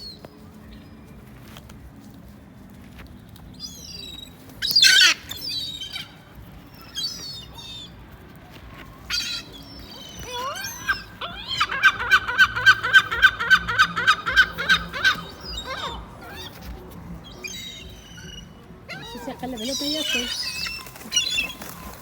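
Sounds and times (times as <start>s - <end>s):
gulls calling: 8.9s - 22.0s.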